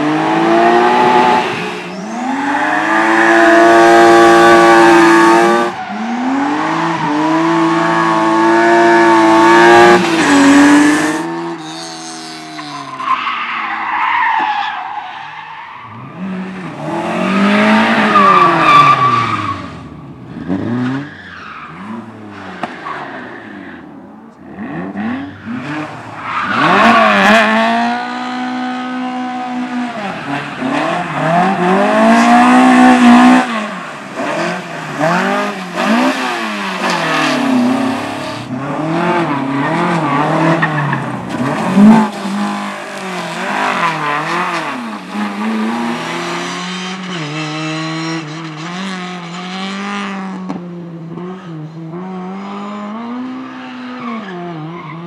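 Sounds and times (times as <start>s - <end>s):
race car engine revving: 0.0s - 13.1s, 24.4s - 53.4s.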